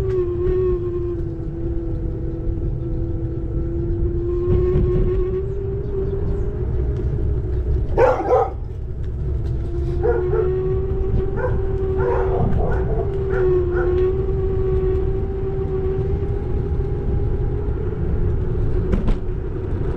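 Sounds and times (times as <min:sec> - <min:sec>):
electric scooter motor whining: 0:00.0 - 0:19.9
wind and road rumble: 0:00.0 - 0:19.9
dog barking: 0:07.9 - 0:08.6, 0:10.0 - 0:10.5, 0:11.4 - 0:14.0.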